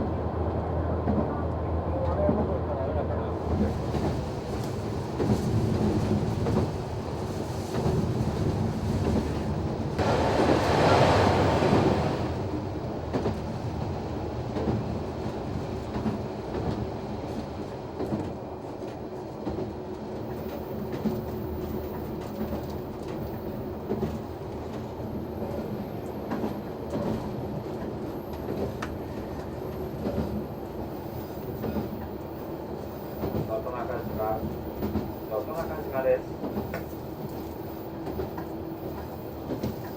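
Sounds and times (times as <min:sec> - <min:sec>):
railcar engine drone: 0:00.0 - 0:39.9
loud rushing surge: 0:10.0 - 0:12.5
wheels clattering over rail joints: 0:10.0 - 0:12.5.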